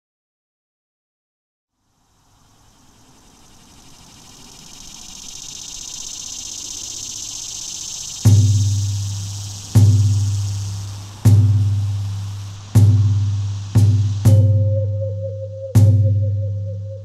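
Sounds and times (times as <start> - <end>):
insects chirping: 1.7 - 17.0
music: 8.3 - 17.0
heavy low drum hit: 9.0 - 14.7.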